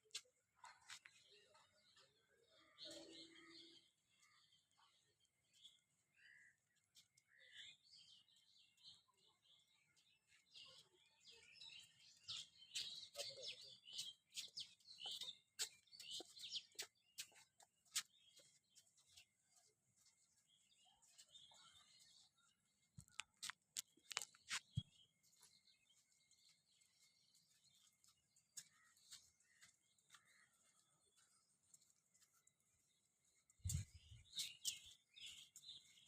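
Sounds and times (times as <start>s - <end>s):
faint bird chirps: 0.7s - 23.3s.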